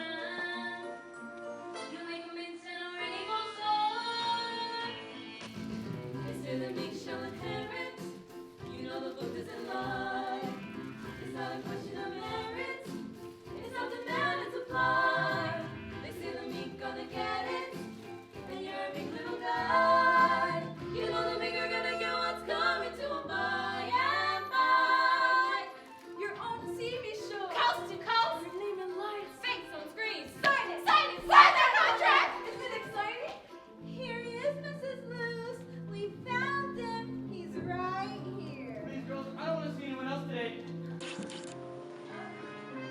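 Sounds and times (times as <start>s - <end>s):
voices singing in harmony: 2.9s - 33.3s.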